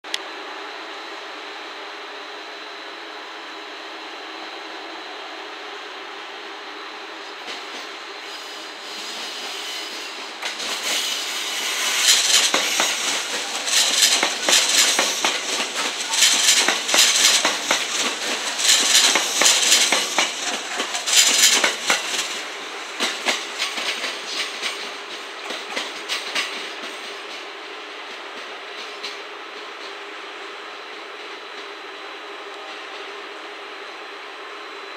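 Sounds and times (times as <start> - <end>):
train wheels clattering over joints: 10.0 - 30.0.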